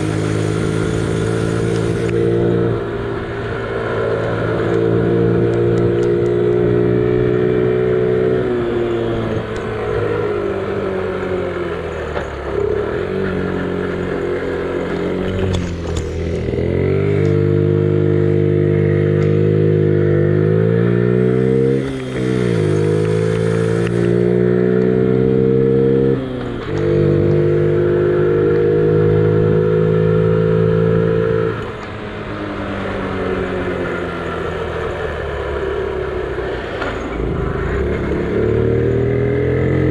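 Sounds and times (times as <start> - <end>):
minibike engine accelerating: 0.0 - 39.9.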